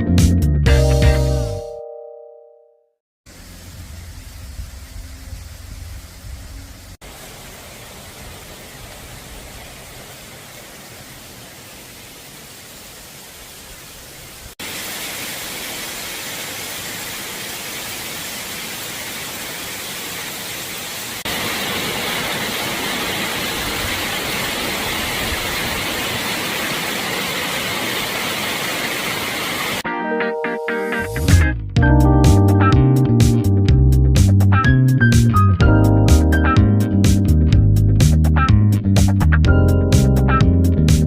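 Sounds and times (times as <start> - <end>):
running water rushing: 3.3 - 29.8.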